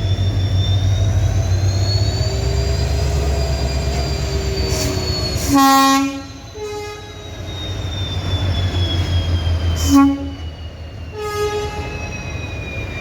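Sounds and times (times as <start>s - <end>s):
diesel locomotive engine rumbling: 0.0s - 13.0s
locomotive horn blast: 4.8s - 7.3s, 9.8s - 10.4s, 11.1s - 12.0s.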